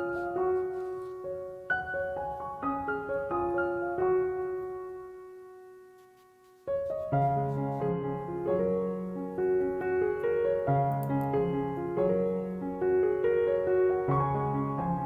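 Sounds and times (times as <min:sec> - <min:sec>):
soft solo piano: 0:00.0 - 0:15.0.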